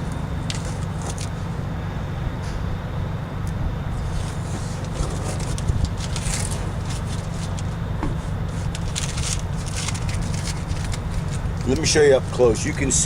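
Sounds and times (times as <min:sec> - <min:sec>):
steady low hum: 0:00.0 - 0:13.0
tape peeling and paper crumpling: 0:00.4 - 0:01.5, 0:04.0 - 0:13.0.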